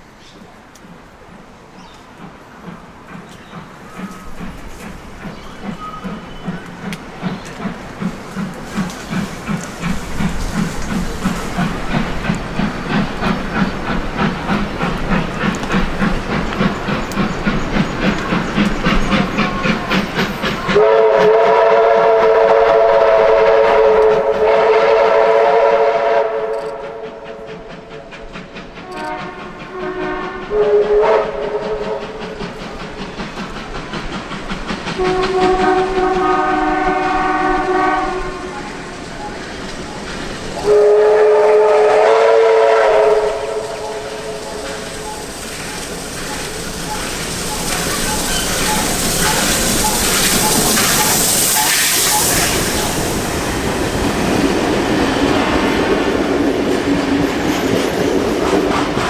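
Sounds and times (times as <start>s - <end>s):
train running past: 0.0s - 59.0s
steam locomotive chime whistle: 20.4s - 27.5s, 28.8s - 32.1s, 35.0s - 53.1s.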